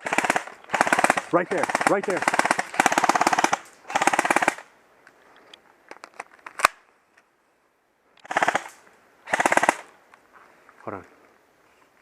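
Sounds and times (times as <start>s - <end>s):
airsoft guns firing bursts: 0.0s - 4.7s, 8.2s - 9.9s.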